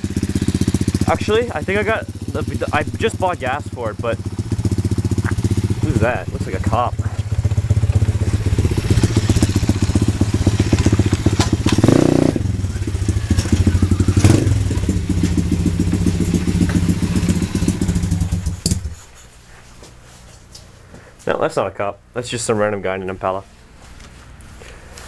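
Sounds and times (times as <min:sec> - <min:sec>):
small motorcycle engine revving: 0:00.0 - 0:19.1.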